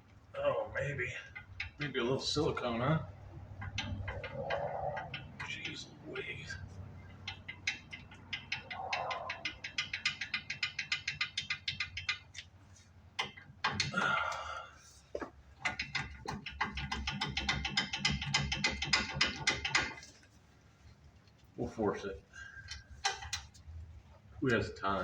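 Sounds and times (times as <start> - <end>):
ratchet wrench clicking: 7.1 - 12.5, 15.6 - 20.1.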